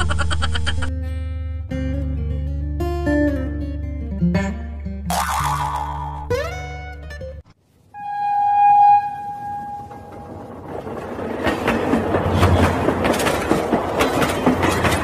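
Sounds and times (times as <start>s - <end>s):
train horn: 8.0s - 10.3s
toy train clickety-clack on rails: 10.1s - 15.0s.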